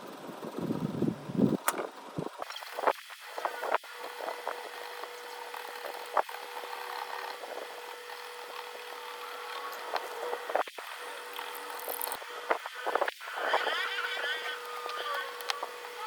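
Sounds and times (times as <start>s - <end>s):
small tools scraping: 2.8s - 15.8s.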